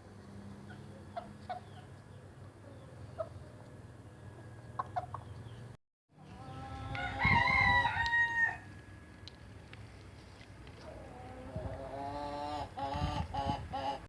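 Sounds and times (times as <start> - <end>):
rooster crowing: 6.7 - 8.7.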